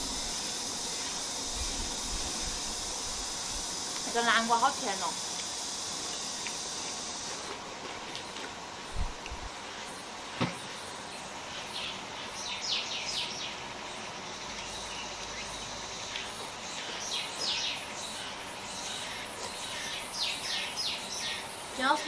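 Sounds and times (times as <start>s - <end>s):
steady background hiss: 0.0s - 22.0s
small birds chirping: 11.0s - 22.0s.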